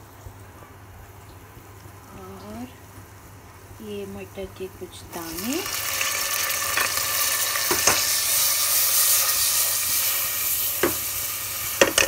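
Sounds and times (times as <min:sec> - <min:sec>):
peas sizzling in hot oil: 0:05.1 - 0:12.0.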